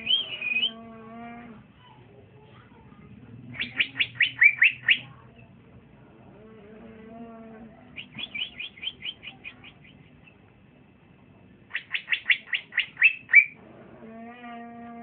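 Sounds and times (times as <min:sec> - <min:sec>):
bird chirping: 0:00.0 - 0:00.8, 0:03.5 - 0:05.5, 0:08.0 - 0:10.3, 0:11.7 - 0:13.6
steady low hum: 0:00.0 - 0:15.0.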